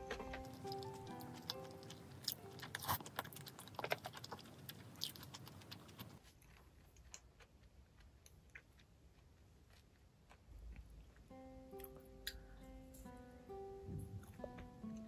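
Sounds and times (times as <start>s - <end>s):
close chewing clicks and smacks: 0.1s - 11.3s.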